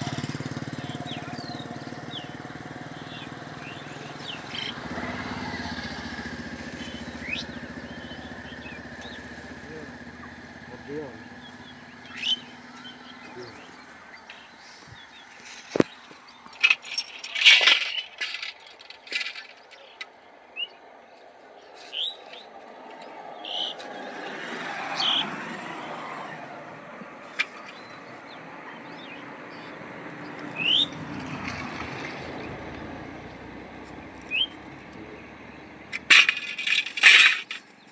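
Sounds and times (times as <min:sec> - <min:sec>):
broad rumble: 0:00.0 - 0:17.5.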